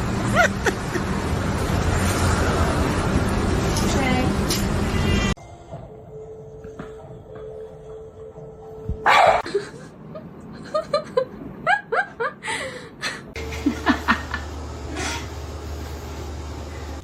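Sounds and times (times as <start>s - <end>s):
person laughing: 0.2s - 1.2s, 9.4s - 15.2s.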